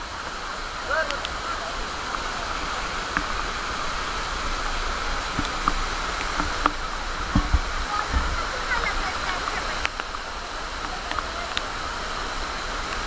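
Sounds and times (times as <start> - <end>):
waterfall rushing: 0.0 - 13.0
faint clicks: 0.9 - 1.4, 2.0 - 3.6, 5.3 - 11.8.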